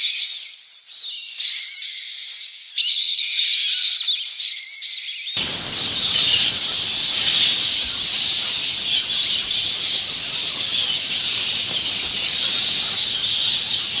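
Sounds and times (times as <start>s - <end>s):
bats chattering and squeaking: 5.4s - 14.0s.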